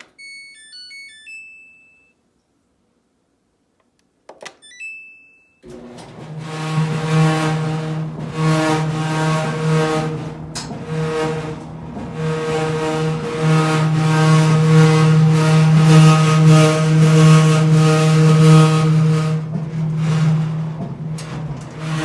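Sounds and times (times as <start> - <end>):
short beep: 0.0 - 2.2
clothes dryer humming: 5.6 - 22.0.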